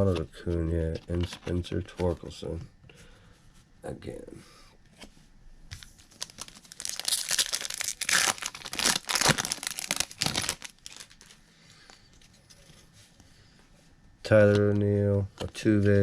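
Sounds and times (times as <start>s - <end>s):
wrapper tearing and crinkling: 5.8s - 11.4s.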